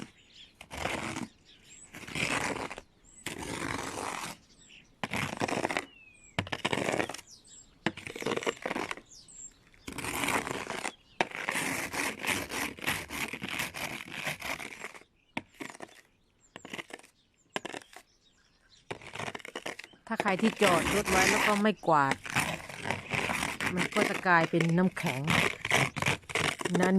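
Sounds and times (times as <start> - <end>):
brush sweeping snow off car: 20.2 - 26.7.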